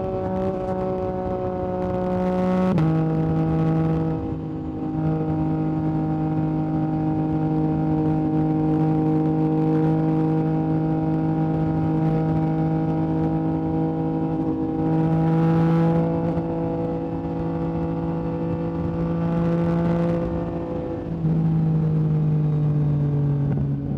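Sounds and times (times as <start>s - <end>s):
motorcycle engine running: 0.0s - 23.9s.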